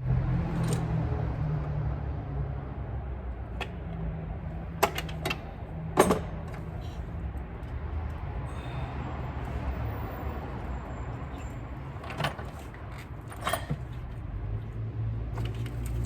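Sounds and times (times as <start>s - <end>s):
metal tools clinking on engine parts: 6.0s - 7.8s, 10.6s - 14.2s, 15.4s - 16.0s.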